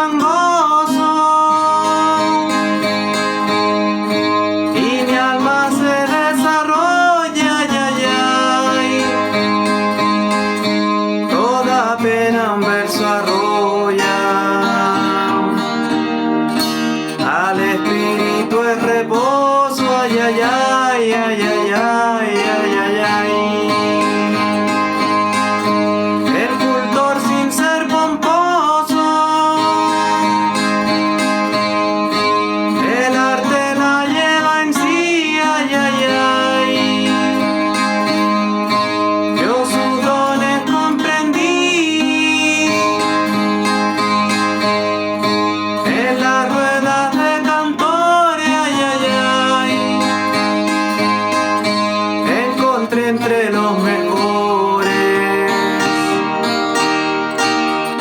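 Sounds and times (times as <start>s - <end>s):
man singing wordless phrases: 0.0s - 3.1s, 4.6s - 9.8s, 11.2s - 16.0s, 17.2s - 24.8s, 26.2s - 31.0s, 32.7s - 38.3s, 39.3s - 43.5s, 45.8s - 50.8s, 52.2s - 56.6s
guitar strummed and plucked: 0.0s - 58.0s.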